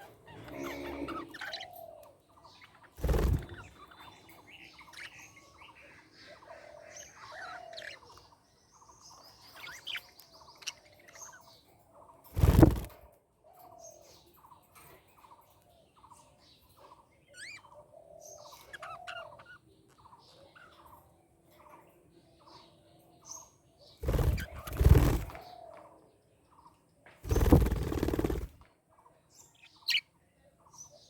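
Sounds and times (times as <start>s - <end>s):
budgerigars chattering: 24.2s - 25.4s.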